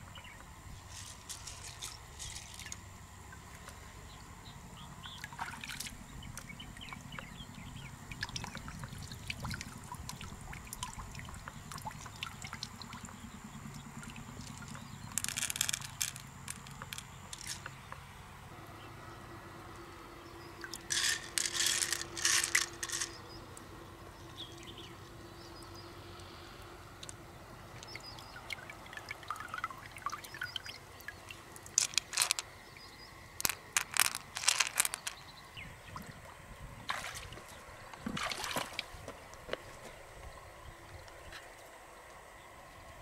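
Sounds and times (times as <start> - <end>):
water trickling and dripping: 5.0 - 17.8, 20.5 - 20.9, 27.0 - 34.2, 35.8 - 42.2
water pouring: 27.8 - 32.4.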